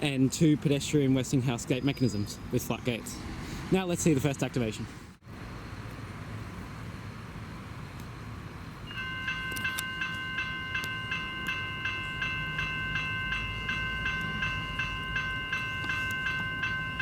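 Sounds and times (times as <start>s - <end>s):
crossing warning bells ringing: 8.8s - 17.0s.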